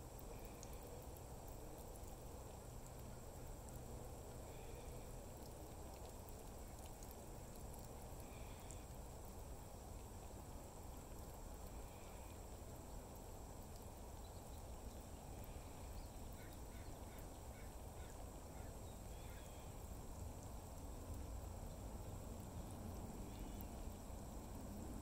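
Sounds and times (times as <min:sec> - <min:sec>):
distant bird calls: 0:15.4 - 0:19.7.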